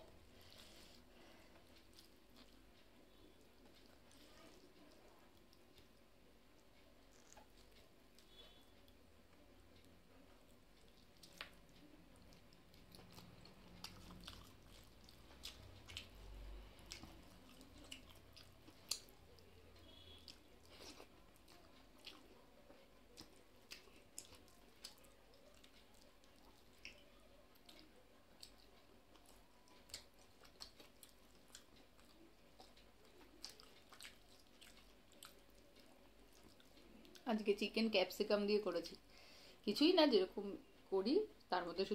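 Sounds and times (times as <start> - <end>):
chewing and wet mouth clicks: 7.0 - 8.4, 10.8 - 22.4, 23.1 - 37.2.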